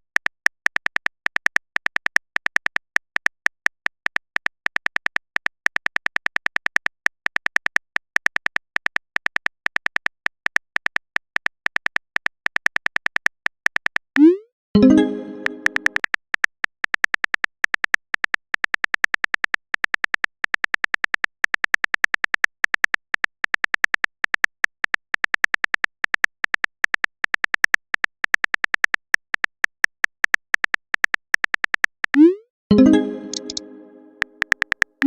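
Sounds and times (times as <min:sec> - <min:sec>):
smartphone keyboard typing clicks: 0:14.9 - 0:35.0.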